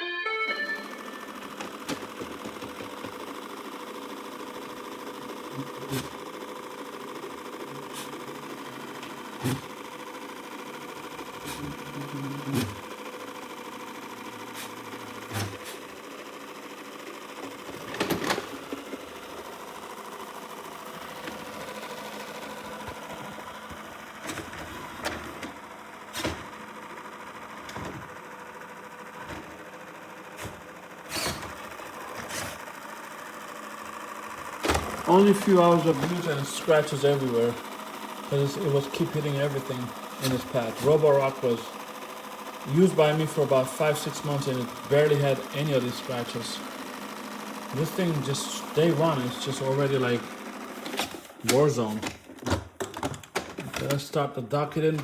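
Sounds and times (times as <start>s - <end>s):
robot vacuum motor whir: 0.4s - 54.0s
short knocks and clicks: 1.6s - 3.3s.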